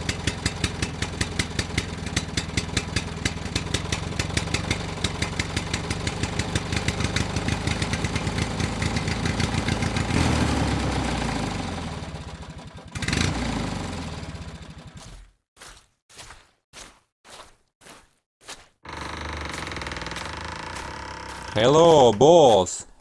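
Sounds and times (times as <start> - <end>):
small tractor engine putter: 0.0 - 9.9, 11.0 - 15.0, 18.8 - 21.7.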